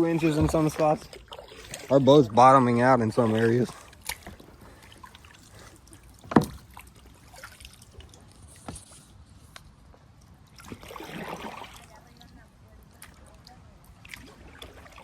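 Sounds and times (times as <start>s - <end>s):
quiet water sounds: 0.0s - 15.0s.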